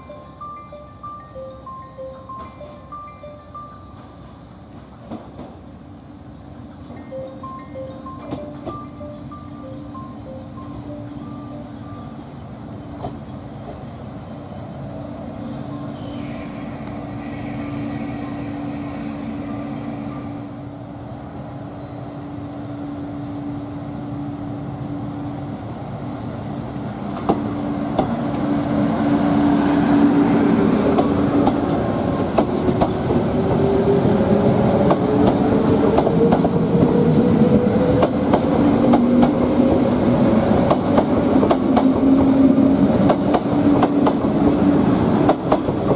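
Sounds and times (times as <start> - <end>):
train hum rising in pitch: 6.9 - 45.9.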